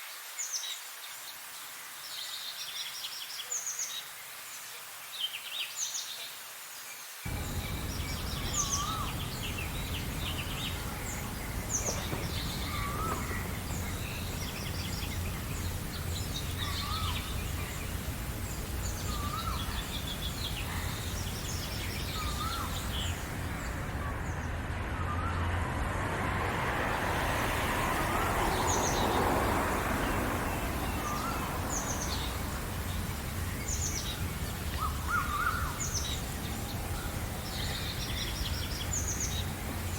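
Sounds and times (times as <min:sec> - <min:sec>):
high bird chirps: 0:07.3 - 0:24.3
broad swell of noise: 0:07.3 - 0:39.9
low background rumble: 0:07.3 - 0:39.9.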